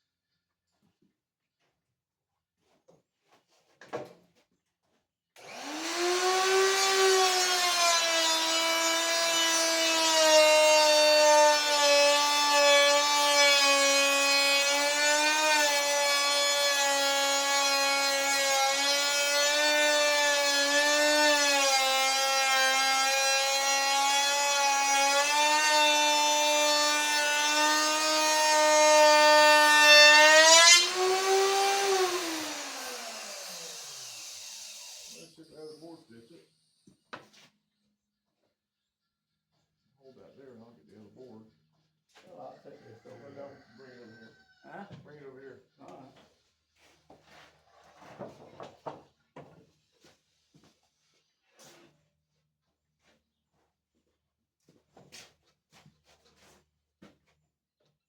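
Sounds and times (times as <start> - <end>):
power tool motor whine: 5.4 - 35.4.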